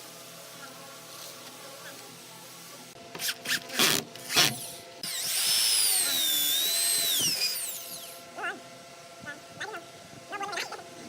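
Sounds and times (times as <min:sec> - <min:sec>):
power drill running: 0:04.2 - 0:08.2.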